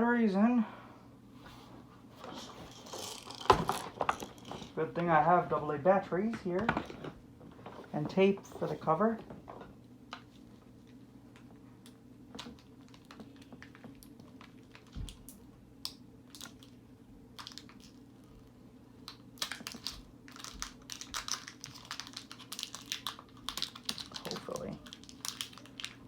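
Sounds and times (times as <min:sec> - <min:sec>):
faint steady hum: 0:00.0 - 0:26.0
hands handling small objects: 0:02.2 - 0:04.8, 0:17.4 - 0:18.4, 0:19.0 - 0:26.0.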